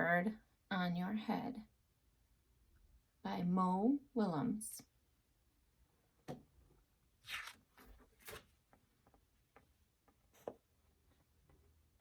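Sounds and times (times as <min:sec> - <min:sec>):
picture book pages rustling: 0:07.2 - 0:09.2.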